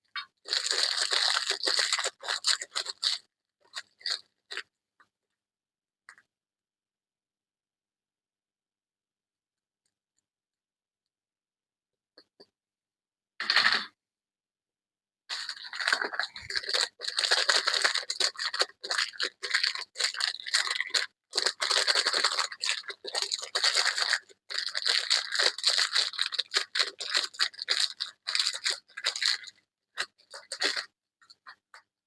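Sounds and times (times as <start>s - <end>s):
packaging crinkling and tearing: 0.4s - 3.2s, 15.3s - 29.5s.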